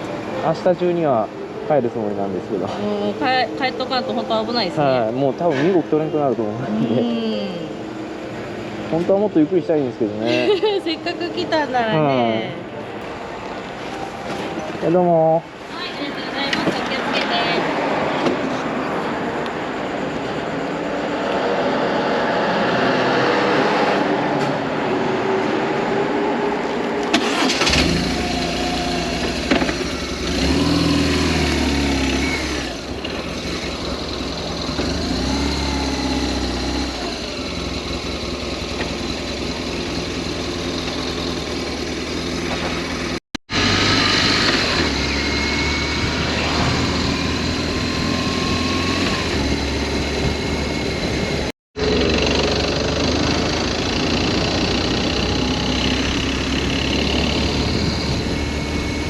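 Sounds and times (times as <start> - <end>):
wind and road noise: 12.6 - 59.0
motorcycle engine revving: 27.2 - 59.0.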